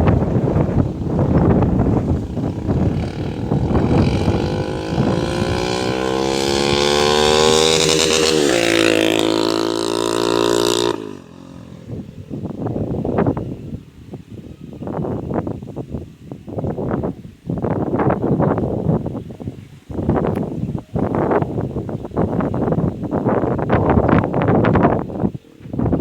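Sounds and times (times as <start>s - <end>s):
motorcycle engine revving: 0.0s - 13.4s.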